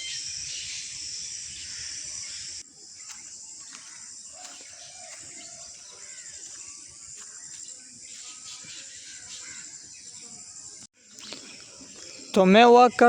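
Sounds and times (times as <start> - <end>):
bird chirps and calls: 0.0 - 12.6
high-pitched insect trill: 0.0 - 13.0.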